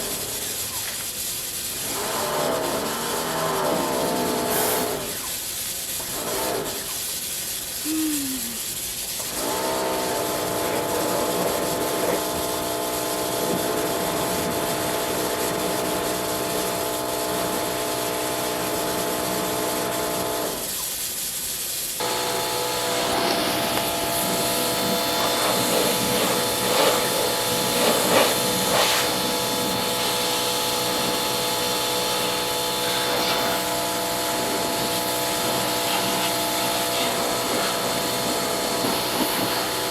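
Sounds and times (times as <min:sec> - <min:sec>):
water jet hiss: 0:00.0 - 0:39.9
pressure washer motor whine: 0:07.8 - 0:20.8, 0:22.0 - 0:39.9.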